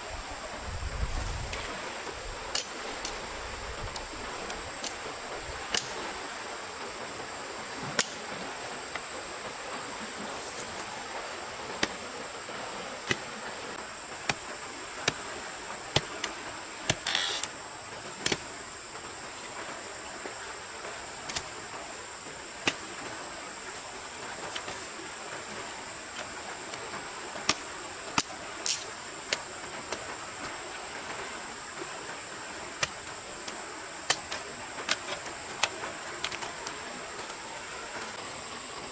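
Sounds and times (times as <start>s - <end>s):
steady rushing hiss: 0.0s - 38.9s.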